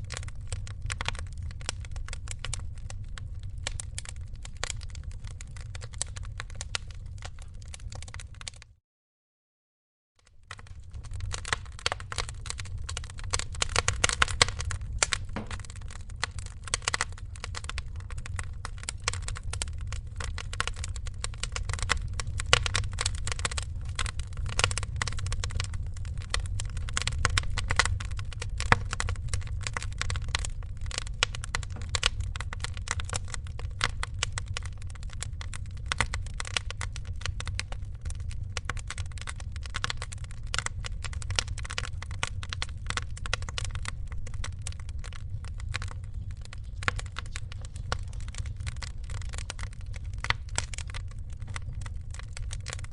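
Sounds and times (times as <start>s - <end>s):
wood fire crackling: 0.0s - 8.7s, 10.2s - 52.9s
low rumble: 10.6s - 36.3s.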